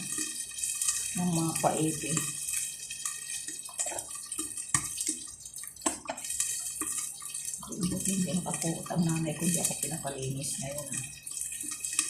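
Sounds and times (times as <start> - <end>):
water running from tap into sink: 0.0 - 12.0.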